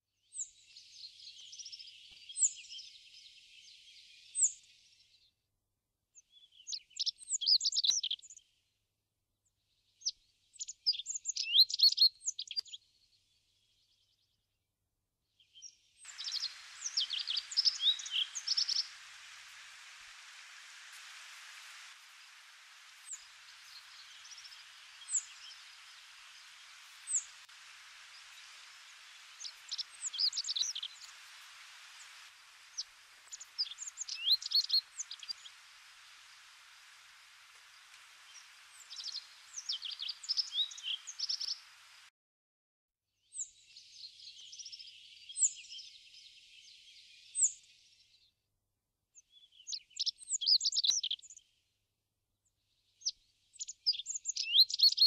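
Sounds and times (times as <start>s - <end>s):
songbirds chirping: 0.2s - 5.5s, 6.2s - 8.8s, 9.4s - 14.6s, 15.3s - 42.1s, 43.3s - 48.4s, 49.2s - 51.8s, 52.4s - 55.0s
steady hiss: 16.0s - 42.1s.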